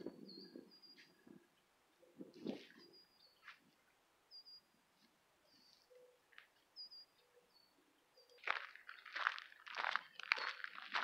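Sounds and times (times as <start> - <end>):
bird chirping faintly: 0.0 - 4.8.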